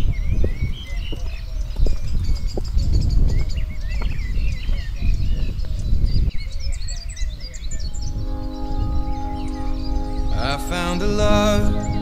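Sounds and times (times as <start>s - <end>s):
songbirds chirping and singing: 0.0s - 12.0s
sustained music chord: 7.8s - 12.0s.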